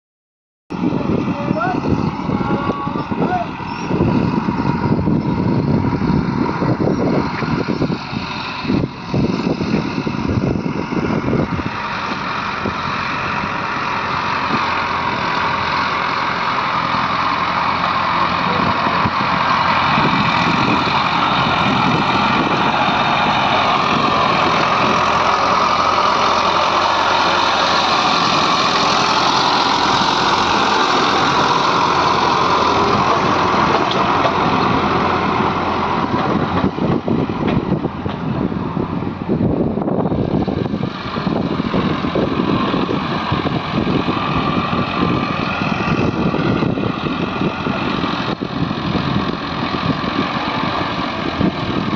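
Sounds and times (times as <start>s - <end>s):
heavy diesel engine running: 0.7s - 51.9s
machinery knocks and clatter: 20.1s - 38.4s.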